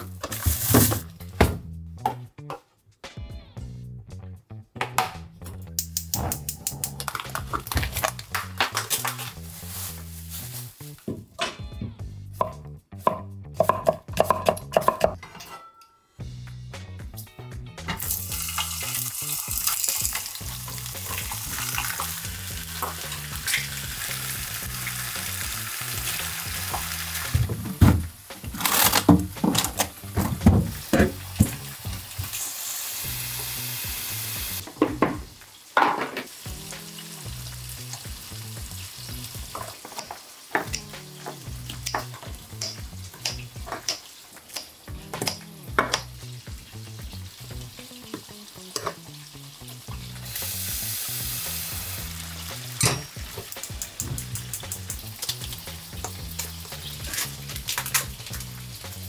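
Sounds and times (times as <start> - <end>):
chicken sizzling in a pan: 6.8 - 11.0, 18.0 - 27.5, 29.9 - 59.0
freezer drawer knocks and clatter: 29.1 - 31.2
kitchen scissors snipping: 41.8 - 46.0.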